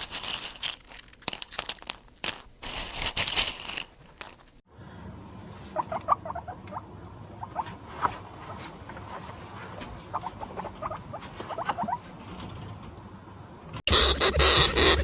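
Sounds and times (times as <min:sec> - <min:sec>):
small animal squeaking: 0:05.8 - 0:06.8, 0:07.4 - 0:07.7, 0:10.1 - 0:12.0.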